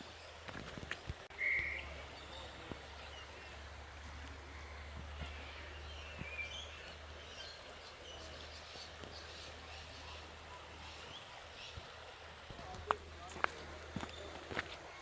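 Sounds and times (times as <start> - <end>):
faint bird chirps: 1.4 - 3.6.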